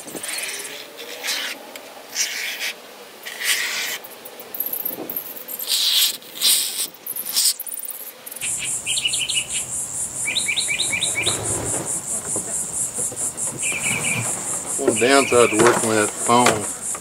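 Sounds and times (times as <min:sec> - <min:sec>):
crickets chirping: 0:07.1 - 0:17.0
bird chirps: 0:08.4 - 0:17.0.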